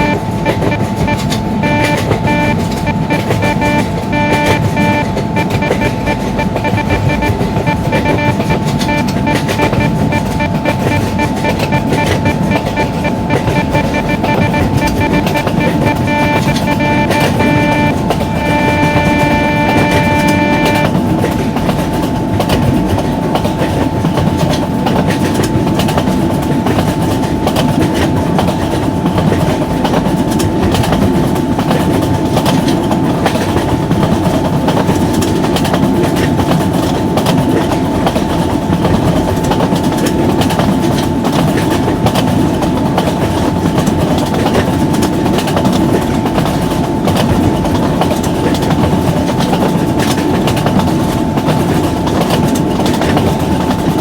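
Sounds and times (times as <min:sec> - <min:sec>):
steady whine: 0:00.0 - 0:20.9.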